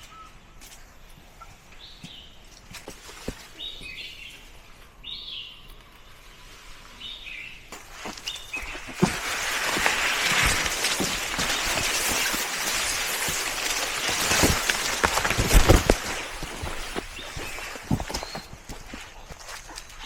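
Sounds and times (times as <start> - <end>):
rustling hiss: 5.8 - 20.0.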